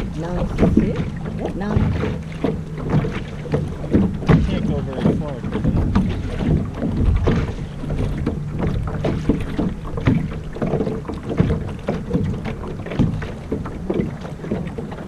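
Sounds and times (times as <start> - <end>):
water slapping against a hull: 0.0 - 15.0
wind buffeting the microphone: 0.0 - 15.0.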